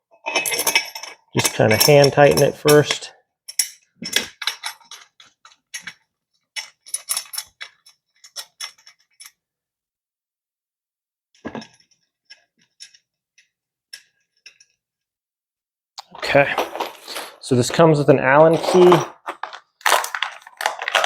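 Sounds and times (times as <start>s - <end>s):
bolts clinking against metal: 0.2s - 9.4s, 18.4s - 19.6s.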